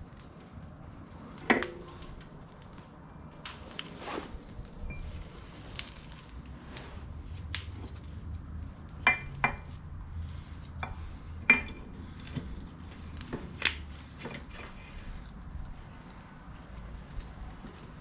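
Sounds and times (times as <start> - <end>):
metal clinks and knocks: 10.8 - 12.4.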